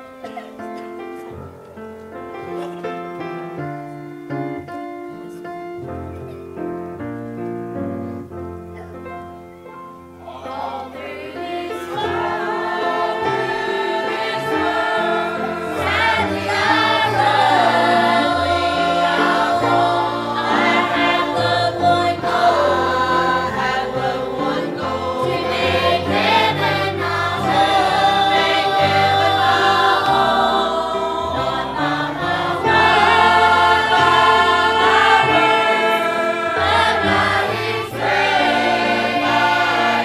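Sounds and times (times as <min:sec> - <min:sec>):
piano playing a hymn: 0:00.0 - 0:40.0
congregation singing: 0:10.1 - 0:40.0.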